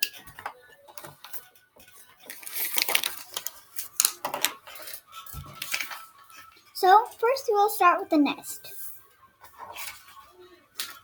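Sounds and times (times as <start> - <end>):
colouring supplies clicking and rustling: 0.0 - 7.2.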